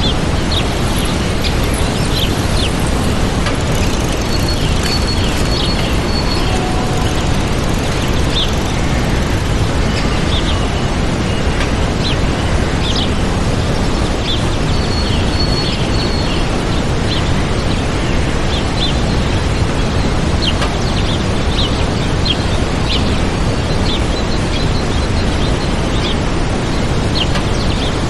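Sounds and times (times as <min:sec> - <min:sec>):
small birds chirping: 0:00.0 - 0:11.4
waterfall rushing: 0:00.0 - 0:14.7.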